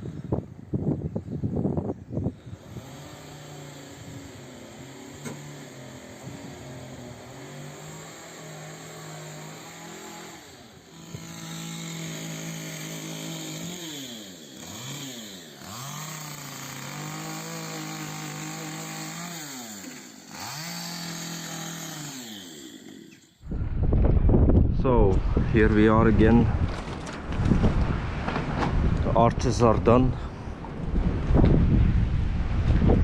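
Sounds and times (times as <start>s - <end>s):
power tool motor running: 2.4s - 23.4s.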